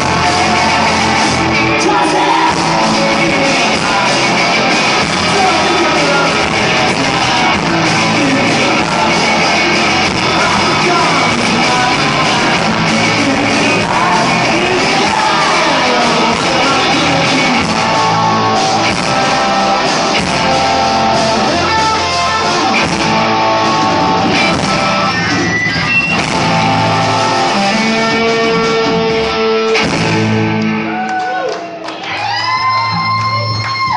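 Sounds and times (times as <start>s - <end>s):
person singing: 0.0s - 24.4s
drums: 0.0s - 33.9s
electric guitars: 0.0s - 33.9s.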